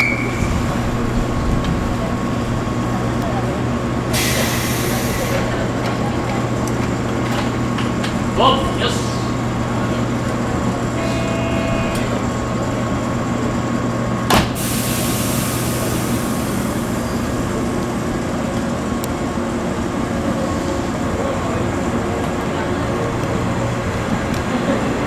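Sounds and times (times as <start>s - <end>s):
electric train equipment humming: 0.0s - 25.0s
air hiss: 4.1s - 5.5s, 14.5s - 17.4s.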